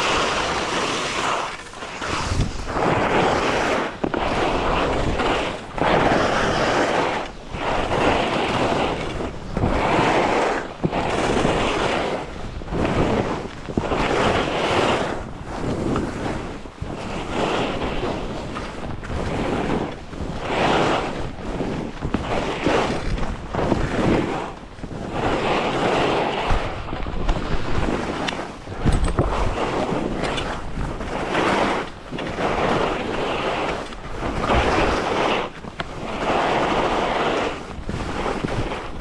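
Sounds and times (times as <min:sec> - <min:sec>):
skis scraping over snow: 0:00.0 - 0:39.0
wind rushing over microphone: 0:00.0 - 0:39.0.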